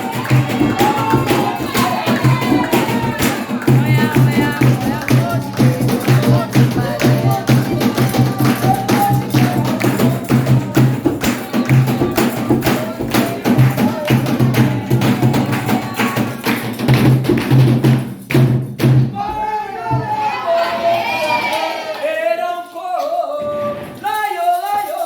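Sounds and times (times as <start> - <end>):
voices singing: 0.0 - 16.8, 19.1 - 25.0
sharp light percussion hits: 0.0 - 19.1
drums beating fast rhythm: 0.0 - 19.2.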